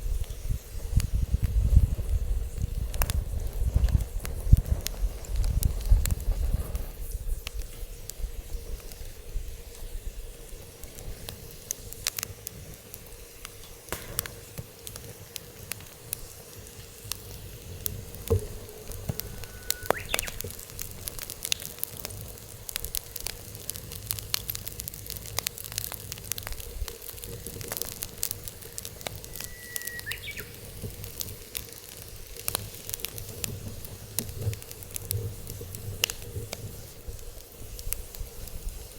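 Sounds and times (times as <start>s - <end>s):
wood fire crackling and popping: 0.0s - 38.9s
brief rising whistle: 18.8s - 20.4s, 29.2s - 30.5s.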